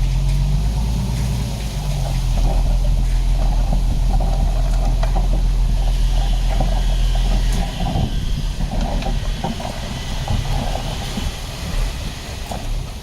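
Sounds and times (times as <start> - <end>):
heavy diesel engine humming: 0.0 - 13.0
machinery rattling: 0.0 - 13.0.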